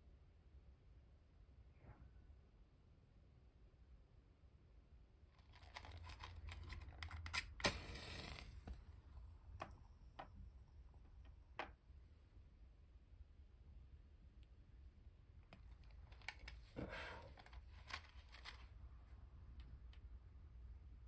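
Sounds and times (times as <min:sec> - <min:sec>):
paper rustling: 0:05.4 - 0:08.4, 0:15.8 - 0:18.8.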